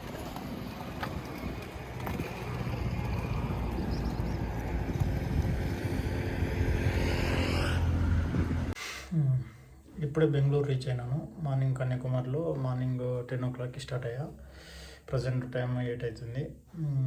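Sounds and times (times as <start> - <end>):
motorcycle engine running: 0.0 - 8.7
wind rushing over microphone: 0.1 - 8.8.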